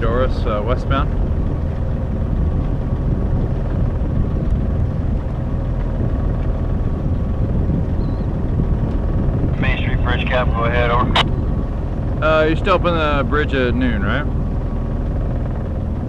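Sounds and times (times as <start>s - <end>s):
boat engine rumbling: 0.0s - 16.0s
faint steady tones: 9.5s - 12.3s.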